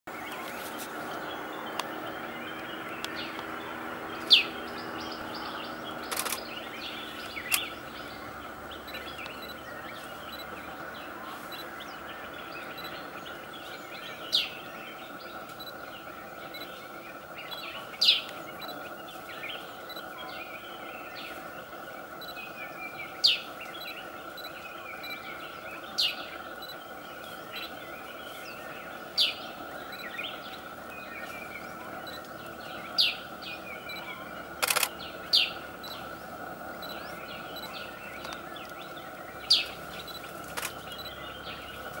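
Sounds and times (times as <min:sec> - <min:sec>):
steady background hum: 0:00.1 - 0:42.0
sharp click: 0:06.1 - 0:06.4, 0:34.6 - 0:34.9, 0:40.5 - 0:40.8.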